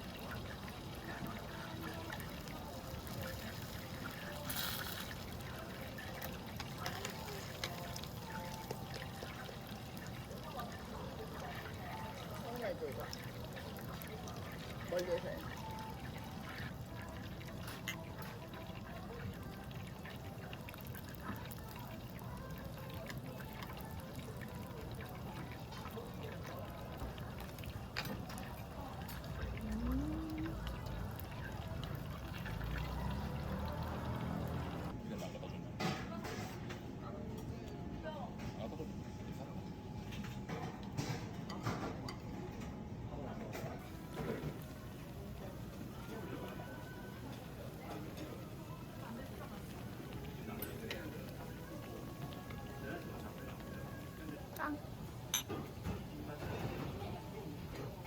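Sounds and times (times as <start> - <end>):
meat sizzling on a grill: 0.0 - 20.6.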